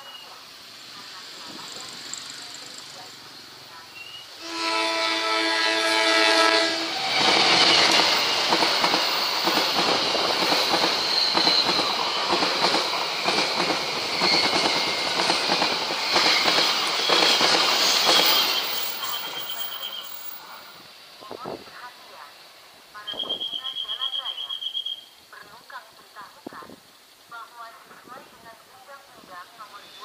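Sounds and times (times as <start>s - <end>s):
high wheel squeal: 6.8s - 12.4s, 13.0s - 15.4s, 16.0s - 20.7s
train wheels clattering on rails: 7.0s - 19.9s.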